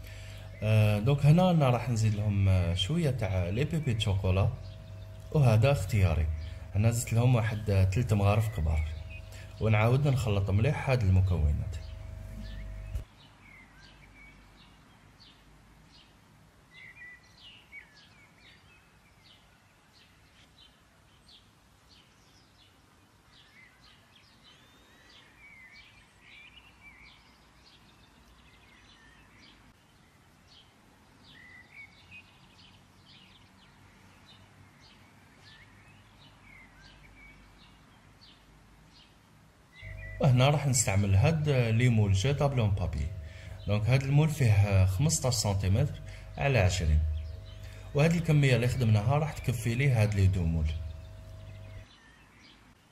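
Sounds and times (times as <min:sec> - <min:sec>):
low steady hum: 0:00.0 - 0:13.1, 0:39.8 - 0:51.9
small birds chirping: 0:00.0 - 0:52.9.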